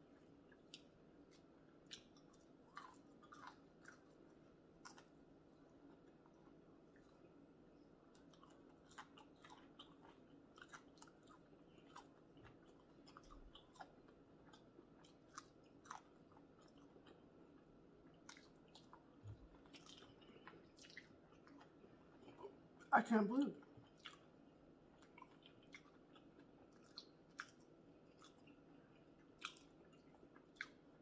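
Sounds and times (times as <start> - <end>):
person chewing food: 0.0 - 22.9, 23.6 - 31.0.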